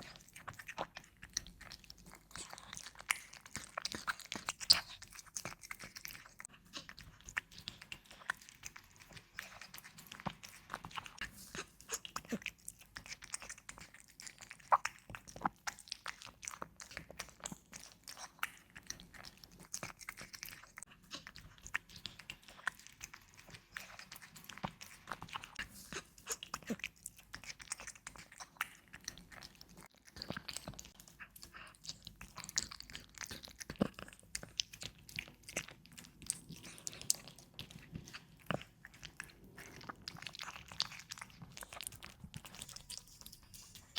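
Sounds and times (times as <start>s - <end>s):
cat chewing food: 0.0s - 43.9s.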